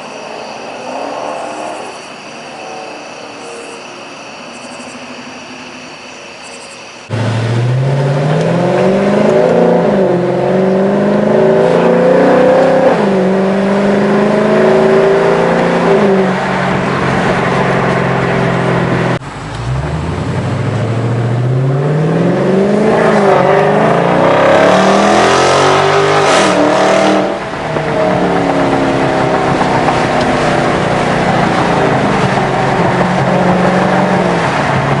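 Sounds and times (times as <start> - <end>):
car engine accelerating: 7.1 - 35.0.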